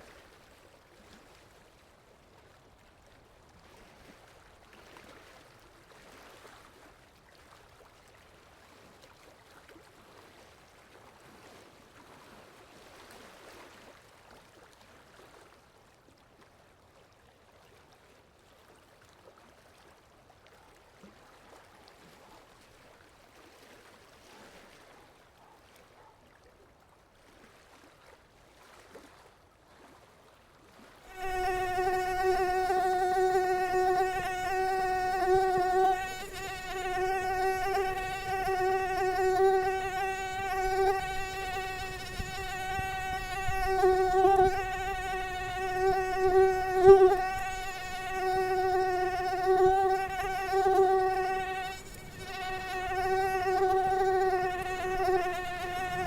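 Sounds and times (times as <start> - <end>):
faint hiss: 31.1 - 56.0
mosquito whine: 31.1 - 56.0.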